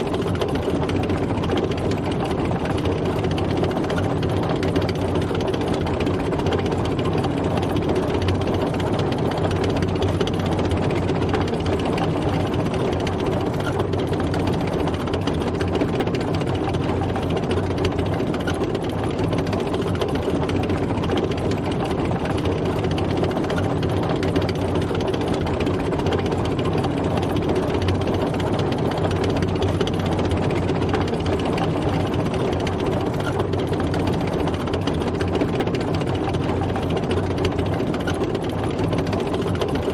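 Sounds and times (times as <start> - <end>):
tank engine running: 0.0 - 39.9.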